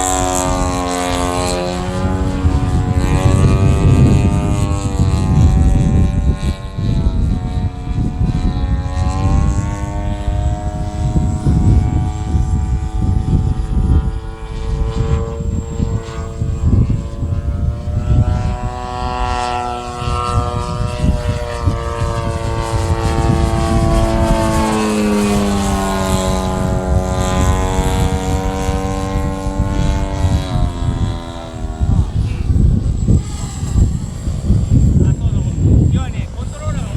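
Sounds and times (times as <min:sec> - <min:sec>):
model aircraft engine and propeller: 0:00.0 - 0:36.9.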